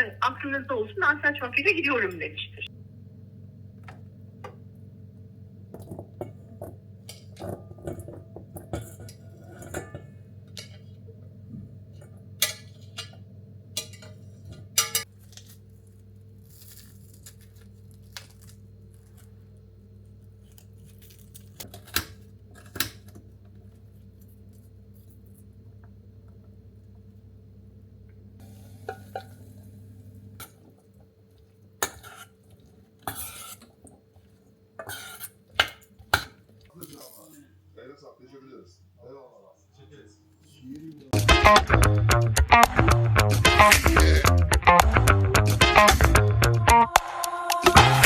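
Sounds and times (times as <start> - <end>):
steady low hum: 0.0 - 36.7.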